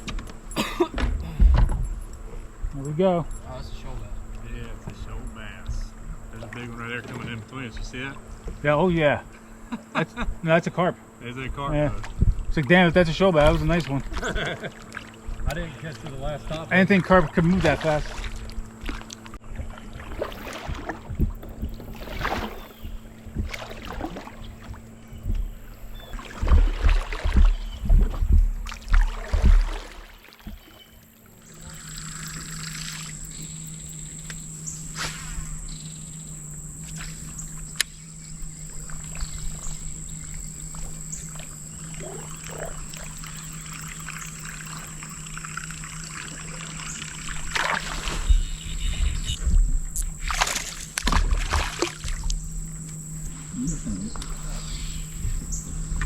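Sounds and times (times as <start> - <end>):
constant high whine: 0.0 - 56.0
steady low hum: 0.0 - 56.0
water trickling and splashing: 11.8 - 33.3, 38.6 - 48.7, 49.8 - 56.0
knocks and low thumps: 25.1 - 29.8.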